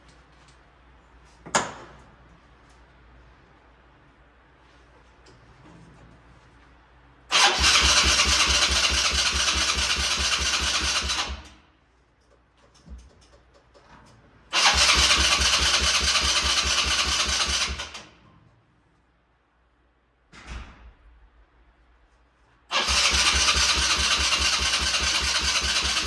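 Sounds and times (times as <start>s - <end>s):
electric starter cranking engine: 7.3s - 11.5s, 14.5s - 18.0s, 22.7s - 26.0s.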